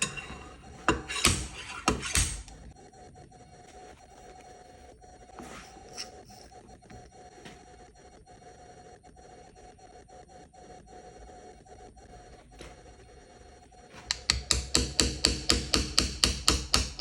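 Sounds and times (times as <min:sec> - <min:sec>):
rapid hammer taps: 0:00.9 - 0:02.6, 0:14.0 - 0:17.0.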